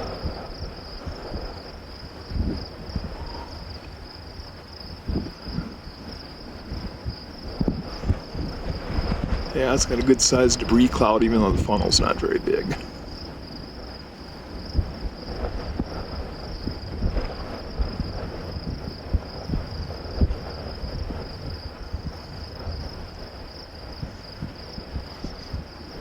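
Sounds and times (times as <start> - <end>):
high-pitched insect trilling: 0.0 - 6.4
wind buffeting microphone: 0.0 - 26.0.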